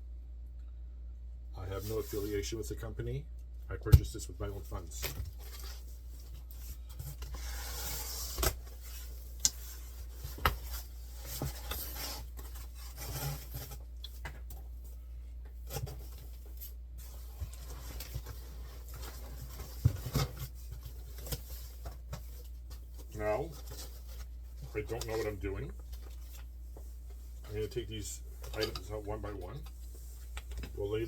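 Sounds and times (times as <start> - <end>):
cardboard and foam rubbing: 5.5 - 13.9.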